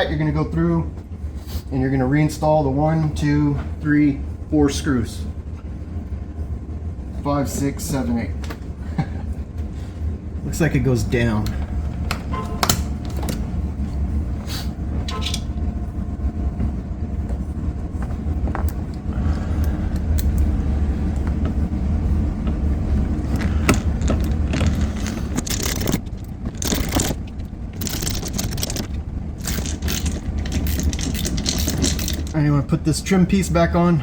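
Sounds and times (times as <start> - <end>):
steady low hum: 0.0 - 34.0
screws being fitted: 23.3 - 32.4.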